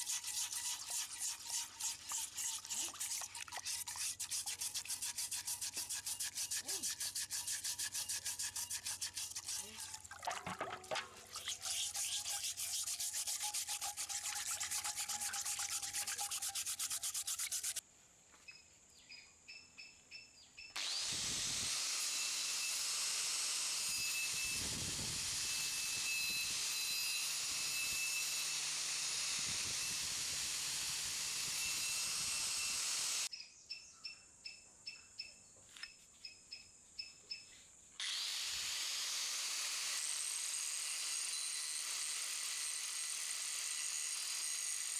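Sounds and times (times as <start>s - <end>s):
angle grinder grinding metal: 0.0s - 17.8s, 20.8s - 33.3s
wire brush scrubbing metal in water: 0.0s - 17.8s.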